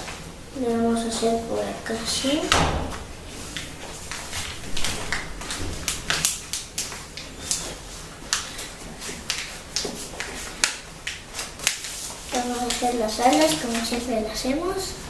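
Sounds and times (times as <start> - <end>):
paper crinkling and rustling: 2.9 - 14.4.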